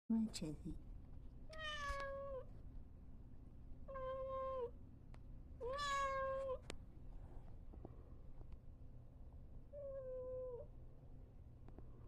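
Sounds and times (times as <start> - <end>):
cat meowing: 1.5 - 2.5, 3.9 - 4.7, 5.6 - 6.6.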